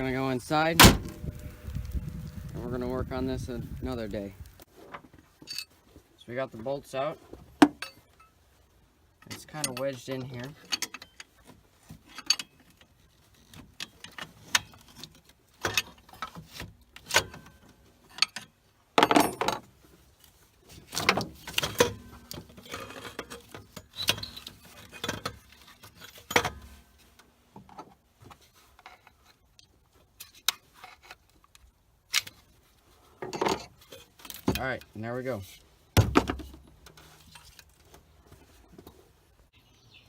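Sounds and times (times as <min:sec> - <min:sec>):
metal clinks knocks and scrapes: 0:33.2 - 0:34.7.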